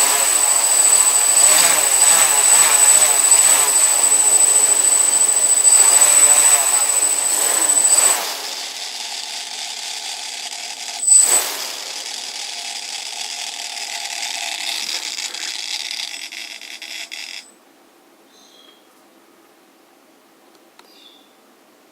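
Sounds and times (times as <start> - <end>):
drone motors whirring and whining: 0.0 - 16.8.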